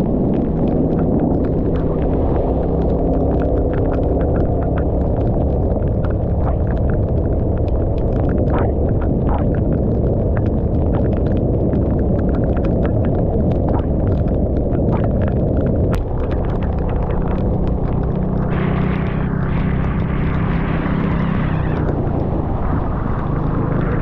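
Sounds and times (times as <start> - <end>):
raindrops striking camera: 0.0 - 24.0
wind rumble on microphone: 0.0 - 24.0
scooter engine hum: 16.0 - 24.0.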